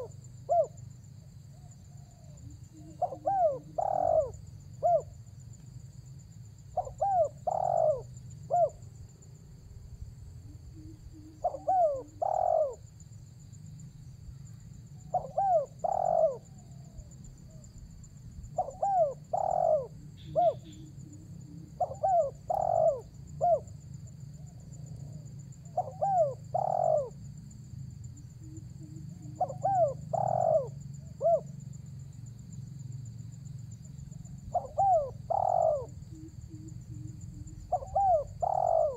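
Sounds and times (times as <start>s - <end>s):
dove cooing: 0.0s - 0.8s, 1.6s - 5.2s, 6.7s - 8.8s, 10.5s - 12.9s, 15.0s - 17.6s, 18.6s - 23.7s, 24.4s - 27.2s, 28.4s - 31.5s, 34.5s - 38.9s.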